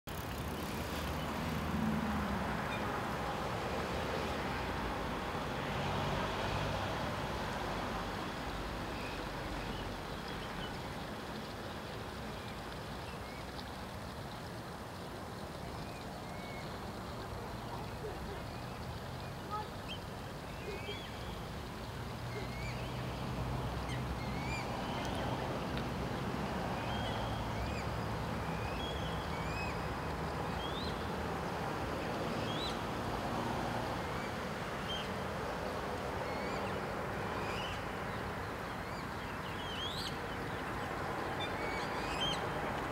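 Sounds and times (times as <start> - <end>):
small birds chirping: 9.0 - 25.5, 36.2 - 42.9.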